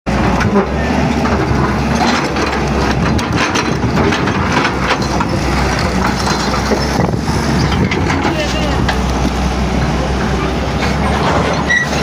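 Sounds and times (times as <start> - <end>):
knocks and clatter: 0.1 - 9.4
excavator diesel engine running: 0.1 - 12.0.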